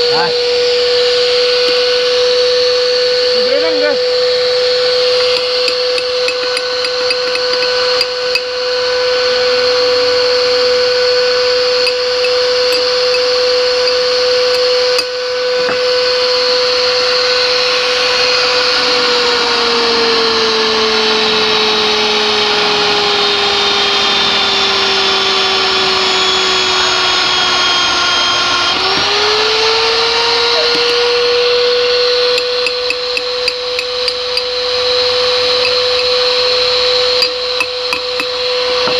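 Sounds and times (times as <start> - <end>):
pipe-threading machine motor whine: 0.0 - 38.9.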